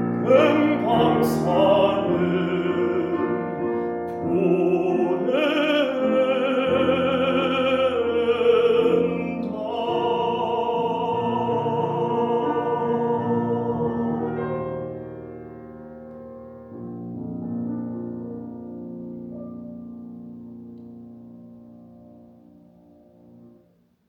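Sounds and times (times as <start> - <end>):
baritone operatic singing: 0.0 - 14.3
piano accompaniment: 0.0 - 23.9.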